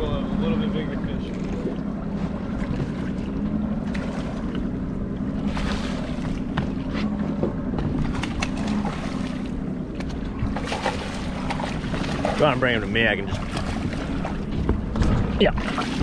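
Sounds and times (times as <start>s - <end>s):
boat motor humming: 0.0s - 16.0s
water washing against hull: 0.0s - 16.0s
wind buffeting microphone: 4.8s - 16.0s.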